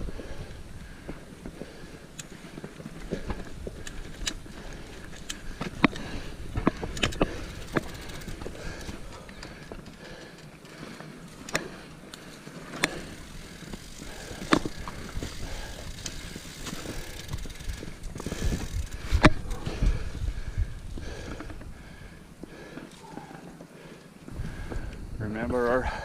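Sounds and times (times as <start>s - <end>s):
bike tyre and drivetrain noise: 0.0s - 26.0s
bike sharp clicks and knocks: 1.0s - 19.9s.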